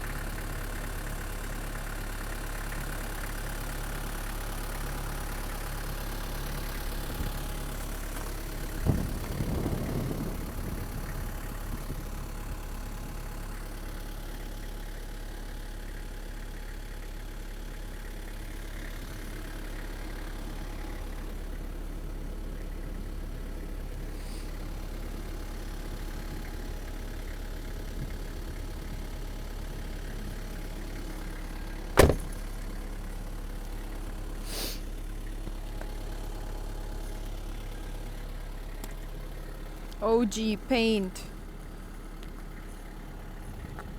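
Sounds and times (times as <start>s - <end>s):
diesel engine idling: 0.0s - 43.9s
knock with short rattle: 32.0s - 32.4s
sharp loud thump: 32.0s - 32.4s.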